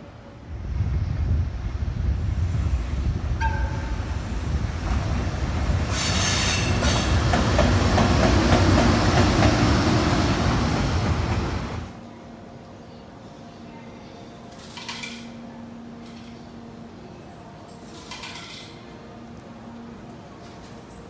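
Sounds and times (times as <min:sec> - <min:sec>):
train wheels rumbling on rails: 0:00.4 - 0:12.0
loud hiss: 0:05.7 - 0:07.3.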